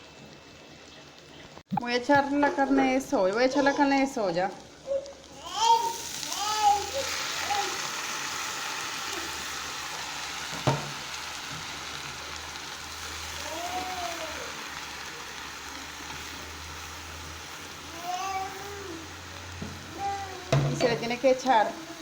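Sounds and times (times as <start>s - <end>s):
meat sizzling in hot oil: 2.4s - 22.0s
utensil knock: 10.6s - 11.0s, 19.6s - 19.8s, 20.5s - 21.1s.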